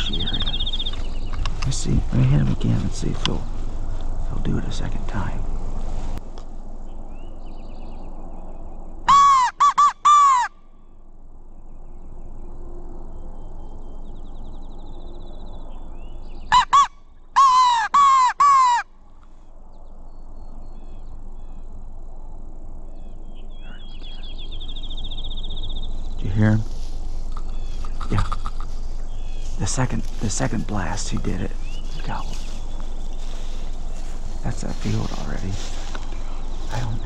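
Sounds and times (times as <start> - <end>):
crow call harsh caws: 16.5 - 19.4.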